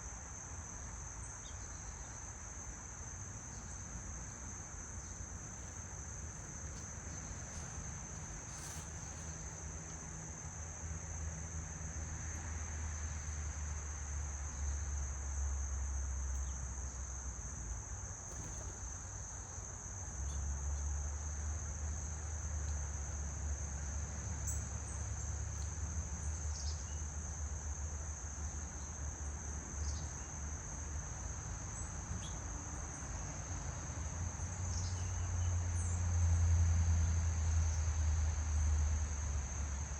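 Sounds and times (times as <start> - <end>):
insects trilling: 0.7 - 39.9.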